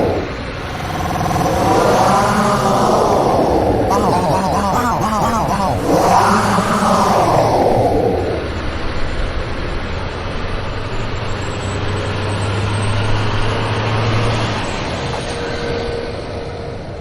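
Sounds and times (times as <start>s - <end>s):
motor vehicle rumbling: 0.0s - 9.0s
low hum: 0.0s - 9.1s.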